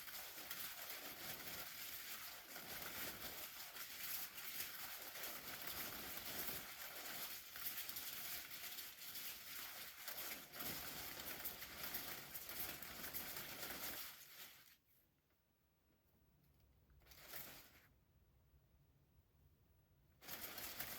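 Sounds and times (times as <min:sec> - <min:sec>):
umbrella crinkly rustling: 0:00.0 - 0:14.8, 0:20.2 - 0:20.9.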